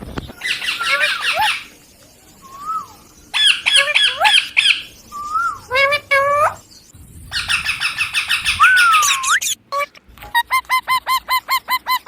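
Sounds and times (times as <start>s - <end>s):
parakeet whistle: 0.4s - 1.7s, 2.4s - 5.8s, 7.3s - 9.6s
parakeet squawking: 0.4s - 1.8s, 3.3s - 6.6s, 7.3s - 9.6s.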